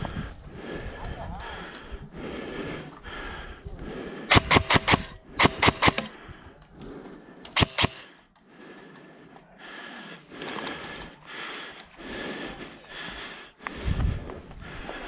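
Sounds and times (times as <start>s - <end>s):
airsoft gun shots: 4.3s - 6.1s, 7.5s - 8.1s.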